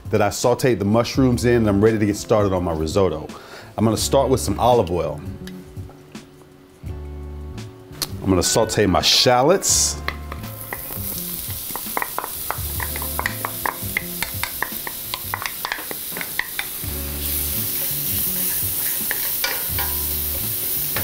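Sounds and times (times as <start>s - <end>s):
shallots sizzling in oil: 9.6s - 21.0s
wooden spoon tapping and scraping: 10.0s - 16.8s, 17.8s - 20.0s.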